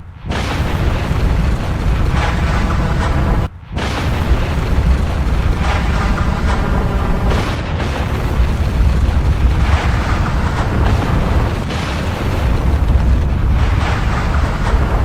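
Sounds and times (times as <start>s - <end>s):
deep volcanic rumble: 0.2s - 15.0s
hissing crackling noise: 0.3s - 15.0s.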